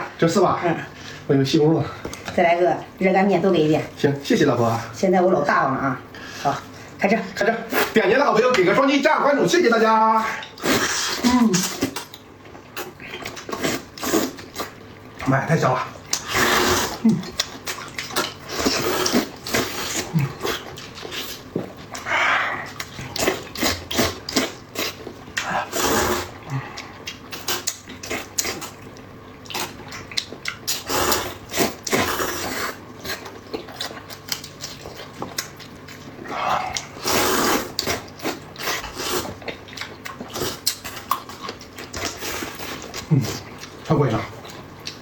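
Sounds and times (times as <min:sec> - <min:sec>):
wet chewing: 0:10.3 - 0:45.0
slurping: 0:10.4 - 0:14.8, 0:16.0 - 0:35.6, 0:36.2 - 0:43.7.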